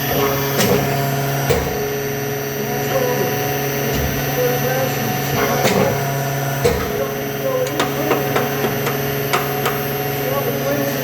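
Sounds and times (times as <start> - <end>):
machinery drone: 0.0 - 11.0
sharp metal knocks and clanks: 0.1 - 1.9, 5.3 - 10.0.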